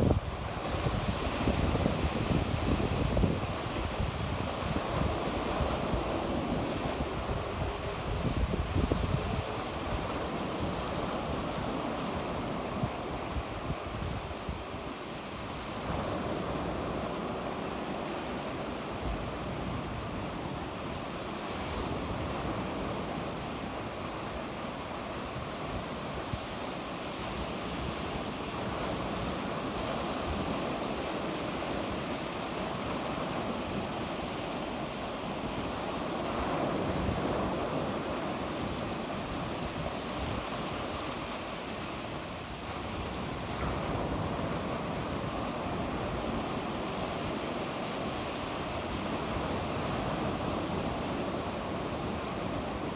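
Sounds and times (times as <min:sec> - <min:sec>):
wind on microphone: 0:00.0 - 0:17.5
sea waves breaking on shore: 0:00.0 - 0:52.9.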